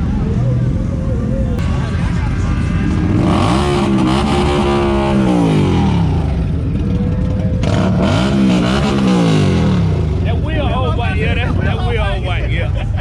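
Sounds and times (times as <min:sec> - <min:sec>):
motorcycle engine revving: 0:01.6 - 0:10.7.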